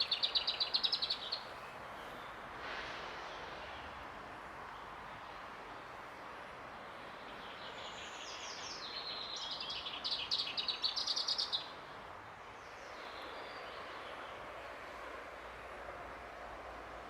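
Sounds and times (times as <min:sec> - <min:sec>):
songbird singing: 0:00.0 - 0:01.7
outdoor background hiss: 0:00.0 - 0:17.0.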